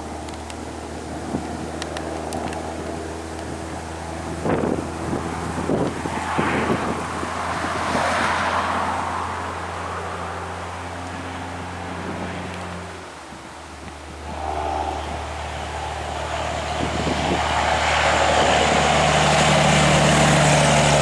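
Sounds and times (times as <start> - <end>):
vehicle passing on road: 4.0 - 13.4, 14.0 - 21.0.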